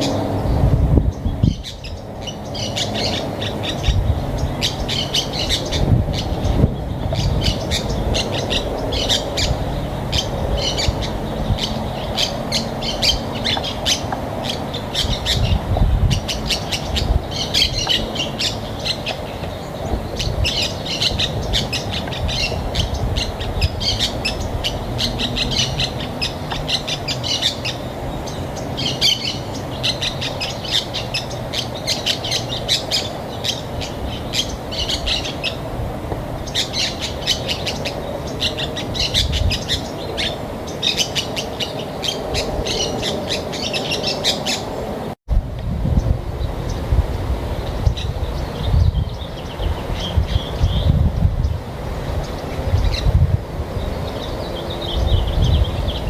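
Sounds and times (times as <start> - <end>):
birds chirping: 0.0 - 45.2, 45.9 - 56.0.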